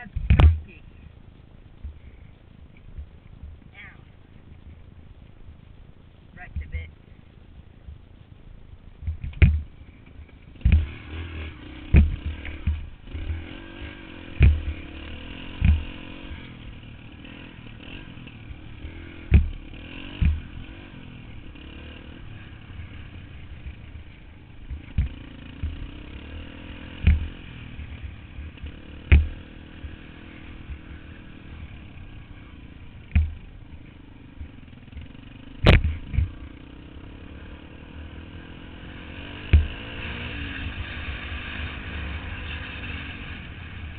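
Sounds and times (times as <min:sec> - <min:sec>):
loud sharp thumps: 0:00.0 - 0:00.8, 0:09.0 - 0:09.8, 0:10.6 - 0:11.0, 0:11.8 - 0:13.4, 0:14.2 - 0:14.8, 0:18.8 - 0:20.7, 0:27.0 - 0:27.4, 0:28.4 - 0:30.0, 0:34.4 - 0:36.5, 0:39.4 - 0:40.2
dirt bike engine: 0:00.0 - 0:43.9.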